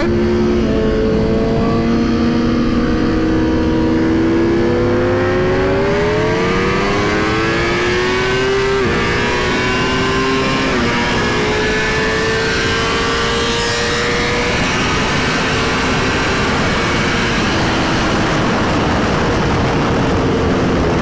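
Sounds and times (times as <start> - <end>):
motorbike engine revving: 0.0 - 21.0.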